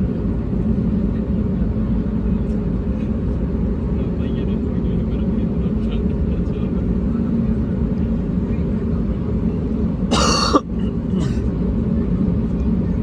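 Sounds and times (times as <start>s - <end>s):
person coughing: 10.1s - 10.6s, 11.2s - 11.4s.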